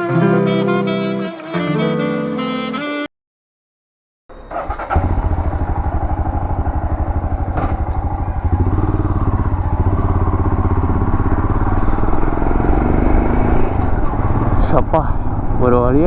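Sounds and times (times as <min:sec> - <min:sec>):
motorcycle engine idling: 0:04.3 - 0:16.0.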